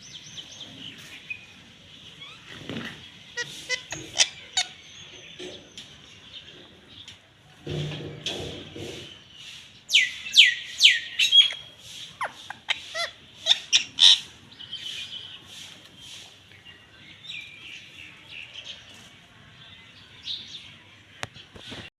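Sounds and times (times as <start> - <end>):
parrot shrieking and chirping: 3.4 - 4.8, 10.0 - 14.3.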